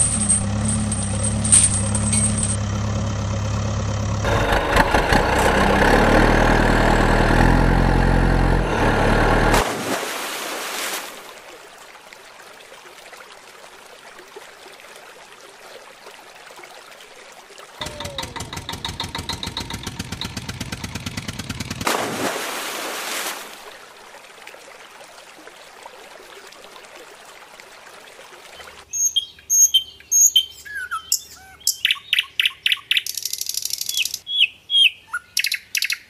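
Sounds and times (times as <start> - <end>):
stream trickling: 0.0 - 4.0, 4.8 - 36.0
motor pulsing rhythmically: 3.1 - 9.6
water splashing: 8.6 - 28.9
bird chirps and trills: 28.9 - 36.0.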